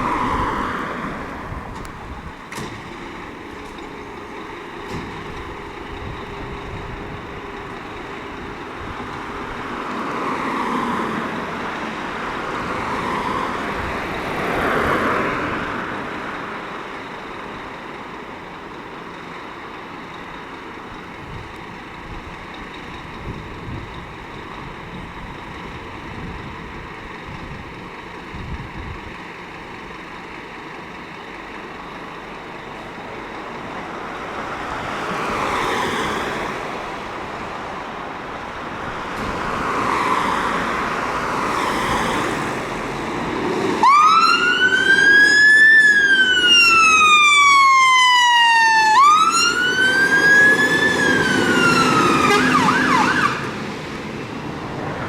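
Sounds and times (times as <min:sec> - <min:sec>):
vehicle noise: 0:00.0 - 0:55.0
electronic siren wailing: 0:43.8 - 0:53.6.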